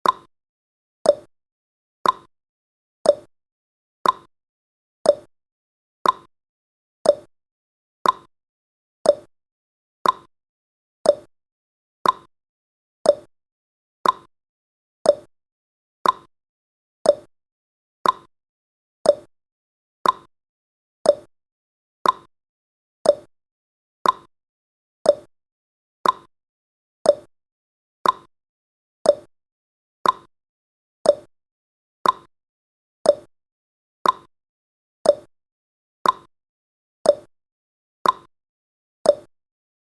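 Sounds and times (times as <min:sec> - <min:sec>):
timer ticking clicks: 0:00.0 - 0:00.3, 0:01.0 - 0:01.3, 0:02.0 - 0:02.3, 0:03.0 - 0:03.3, 0:04.0 - 0:04.3, 0:05.0 - 0:05.3, 0:06.0 - 0:06.3, 0:07.0 - 0:07.3, 0:08.0 - 0:08.3, 0:09.0 - 0:09.3, 0:10.0 - 0:10.3, 0:11.0 - 0:11.3, 0:12.0 - 0:12.3, 0:13.0 - 0:13.3, 0:14.0 - 0:14.3, 0:15.0 - 0:15.3, 0:16.0 - 0:16.3, 0:17.0 - 0:17.3, 0:18.0 - 0:18.3, 0:19.0 - 0:19.3, 0:20.0 - 0:20.3, 0:21.0 - 0:21.3, 0:22.0 - 0:22.3, 0:23.0 - 0:23.3, 0:24.0 - 0:24.3, 0:25.0 - 0:25.3, 0:26.0 - 0:26.3, 0:27.0 - 0:27.3, 0:28.0 - 0:28.3, 0:29.0 - 0:29.3, 0:30.0 - 0:30.3, 0:31.0 - 0:31.3, 0:32.0 - 0:32.3, 0:33.0 - 0:33.3, 0:34.0 - 0:34.3, 0:35.0 - 0:35.3, 0:36.0 - 0:36.3, 0:37.0 - 0:37.3, 0:38.0 - 0:38.3, 0:39.0 - 0:39.3.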